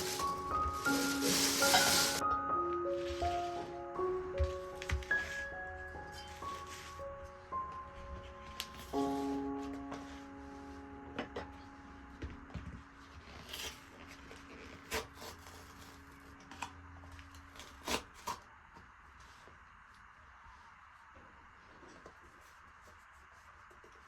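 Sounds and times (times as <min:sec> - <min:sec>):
things being handled: 0:00.0 - 0:07.1
background music: 0:00.0 - 0:16.7.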